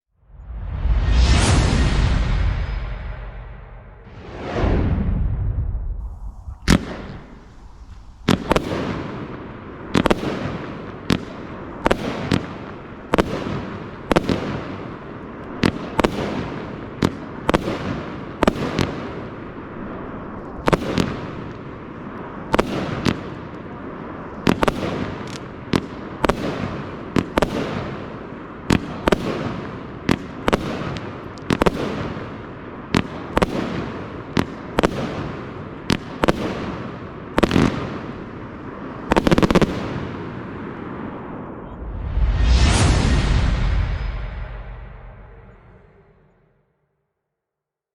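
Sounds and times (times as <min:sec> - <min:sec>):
rumbling echo: 0:00.2 - 0:13.8, 0:38.2 - 0:46.6
firework shots banging: 0:06.0 - 0:23.6, 0:24.2 - 0:40.7.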